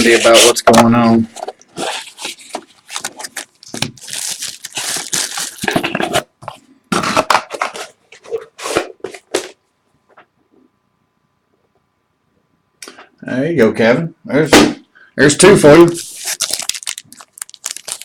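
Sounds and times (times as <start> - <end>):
wrapper tearing and crinkling: 1.8 - 6.0, 16.0 - 18.0.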